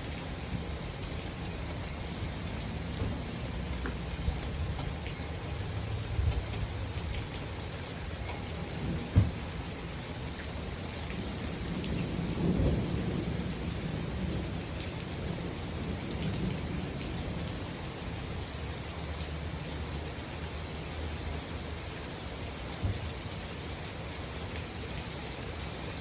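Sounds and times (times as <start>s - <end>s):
steady rain: 0.0s - 26.0s
thunder rolling: 8.7s - 9.6s, 11.2s - 17.5s.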